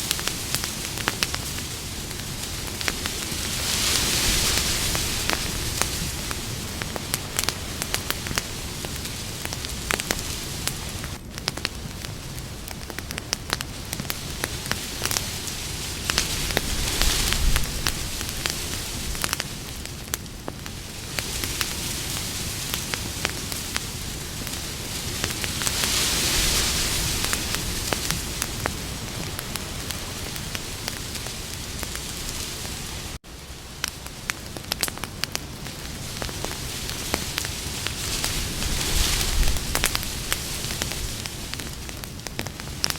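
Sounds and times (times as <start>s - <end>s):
campfire crackling and hissing: 0.0s - 42.9s.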